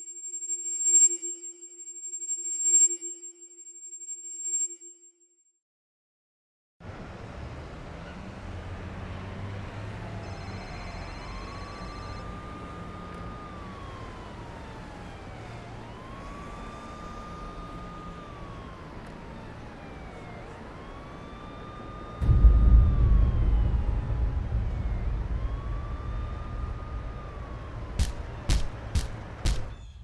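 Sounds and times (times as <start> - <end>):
traffic rumble: 6.8 - 30.0
siren wailing: 9.1 - 30.0.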